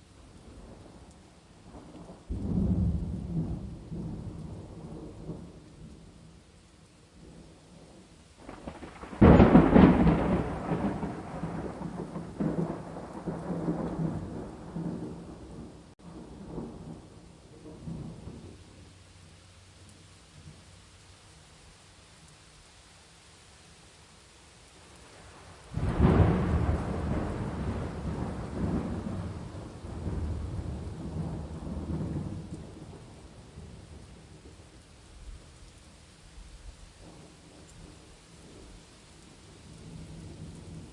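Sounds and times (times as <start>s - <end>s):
steady rain: 0.0s - 40.9s
thunderclap and rumble: 0.5s - 6.1s, 7.2s - 18.6s, 25.3s - 35.4s.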